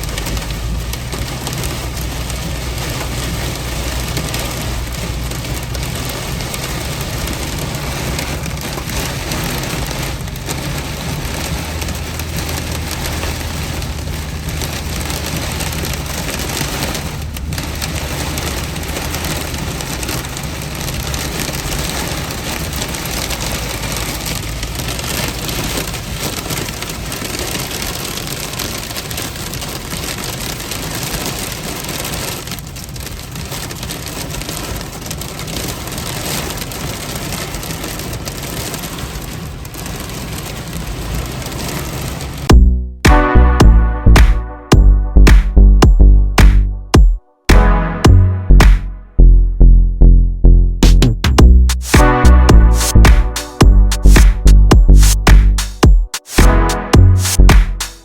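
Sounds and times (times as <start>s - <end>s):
heavy rain on car roof: 0.0s - 42.6s, 51.1s - 58.0s
low steady rumble: 42.5s - 57.8s.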